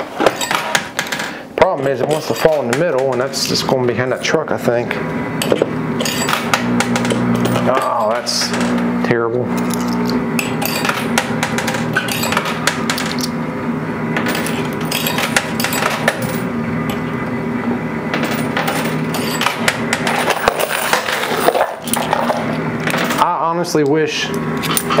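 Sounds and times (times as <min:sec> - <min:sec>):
steady low hum: 0:00.0 - 0:25.0
coins clinking and clattering: 0:00.3 - 0:01.4, 0:05.5 - 0:08.8, 0:09.6 - 0:13.4, 0:14.2 - 0:17.1, 0:18.1 - 0:23.3.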